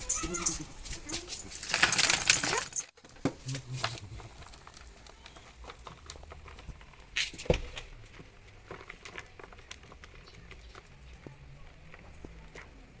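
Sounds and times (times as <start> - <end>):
crinkling handling noise: 0.0 - 13.0
faint clicks and taps: 4.1 - 13.0.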